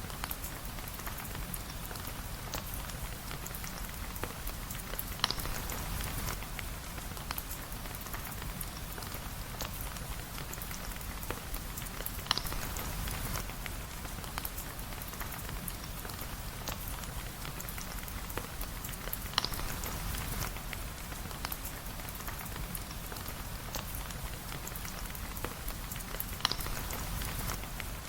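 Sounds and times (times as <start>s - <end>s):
rain hissing: 11.1s - 15.0s, 15.8s - 28.0s.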